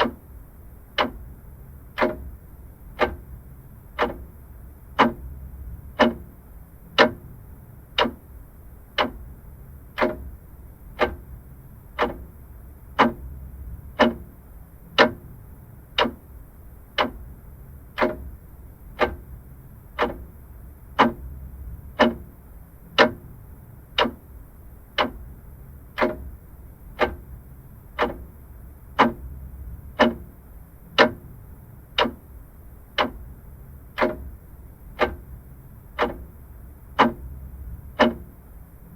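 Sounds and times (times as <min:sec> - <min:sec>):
clock ticking: 0:00.0 - 0:00.3, 0:00.9 - 0:01.3, 0:01.9 - 0:07.3, 0:07.9 - 0:09.3, 0:09.9 - 0:15.3, 0:16.0 - 0:17.3, 0:17.9 - 0:38.6
faint low background hum: 0:00.0 - 0:38.9.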